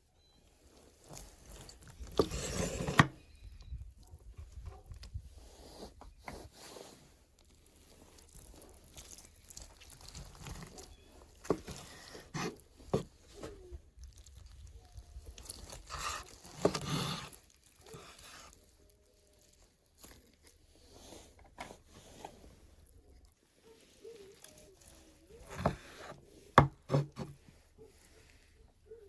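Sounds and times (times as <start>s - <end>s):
crunching and chewing: 7.0s - 26.6s.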